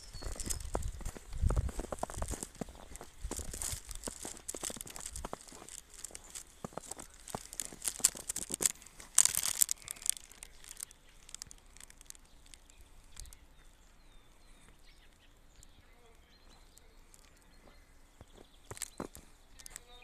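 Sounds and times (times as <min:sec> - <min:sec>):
footsteps crunching in snow: 0:00.0 - 0:13.4, 0:16.4 - 0:20.0.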